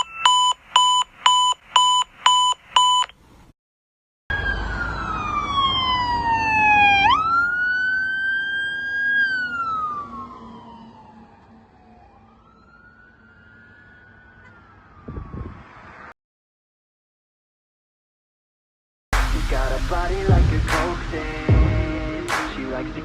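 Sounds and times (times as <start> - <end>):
fire engine siren wailing: 4.3 - 16.0.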